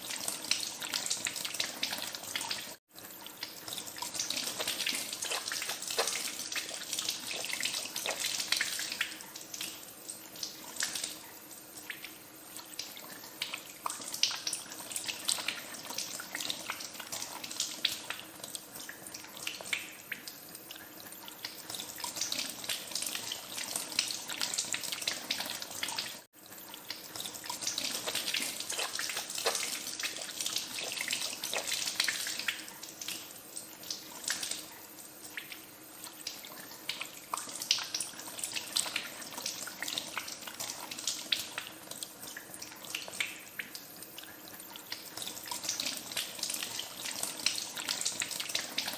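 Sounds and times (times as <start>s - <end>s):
hands washing in water: 3.6s - 9.7s, 27.2s - 33.2s.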